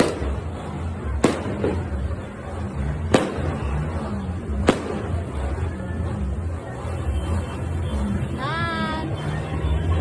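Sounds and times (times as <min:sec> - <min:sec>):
firecracker bangs: 0:00.0 - 0:02.2, 0:02.9 - 0:05.4.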